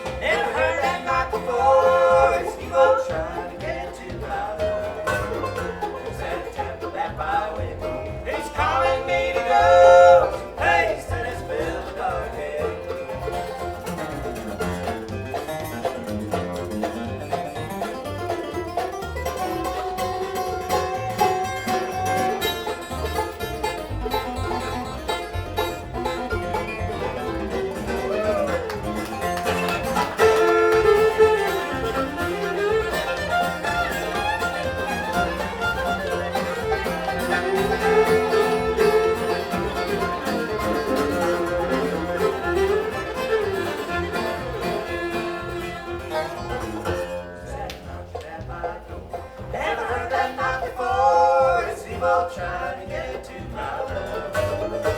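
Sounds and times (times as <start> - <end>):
bluegrass band playing: 0.0 - 54.9
fiddle lead with sliding notes: 0.0 - 54.9.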